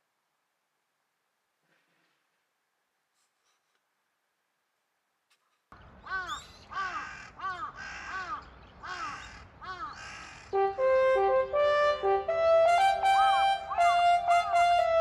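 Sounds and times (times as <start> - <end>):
crow cawing: 6.0 - 10.6
background music with horn notes: 10.6 - 15.0.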